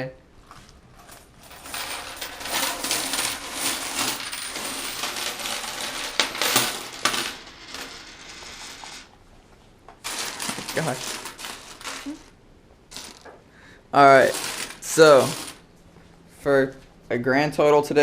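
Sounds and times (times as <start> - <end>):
coins clattering and jingling: 1.4 - 9.1, 10.0 - 12.3, 12.9 - 13.3, 14.2 - 15.6.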